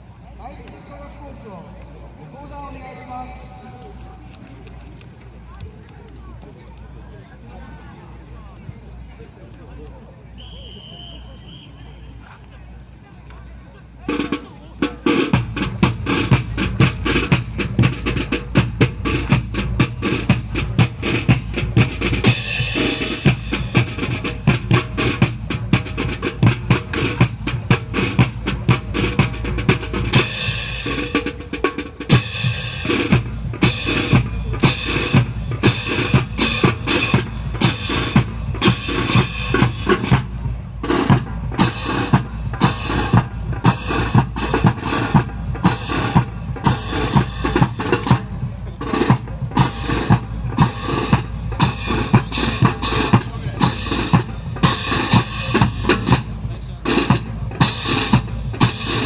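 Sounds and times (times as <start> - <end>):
drum-led music: 14.0 - 59.0.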